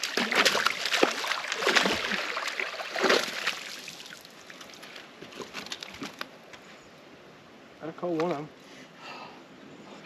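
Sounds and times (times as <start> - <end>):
water splashing and sloshing: 0.0 - 6.4.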